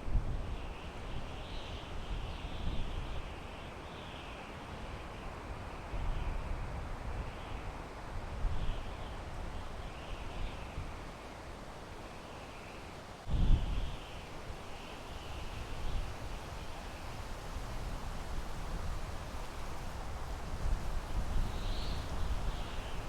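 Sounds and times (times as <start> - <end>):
wind rumble on microphone: 0.0 - 3.5, 13.3 - 23.0
wind through pine trees: 0.0 - 23.0.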